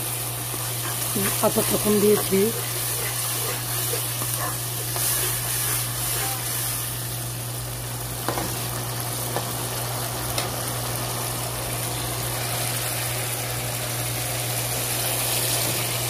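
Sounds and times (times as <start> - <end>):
spatula stirring: 0.0 - 7.0
steady low hum: 0.0 - 8.2
paste sizzling in oil: 0.0 - 16.0.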